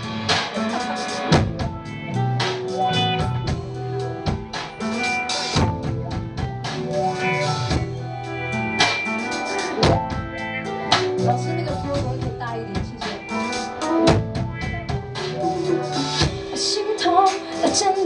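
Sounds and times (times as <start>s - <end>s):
drum kit beat: 0.0s - 18.0s
live band playing: 0.0s - 18.0s.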